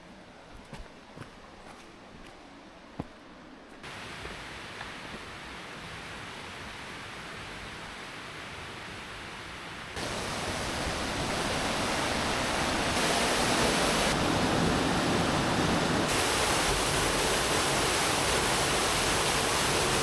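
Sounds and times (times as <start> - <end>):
waterfall rushing: 10.0 - 20.0.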